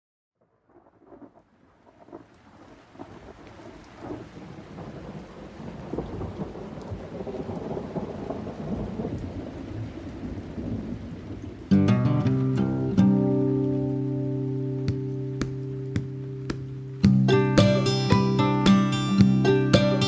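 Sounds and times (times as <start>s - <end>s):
rain falling: 0.4s - 20.0s
thunder rumbling: 0.7s - 11.7s.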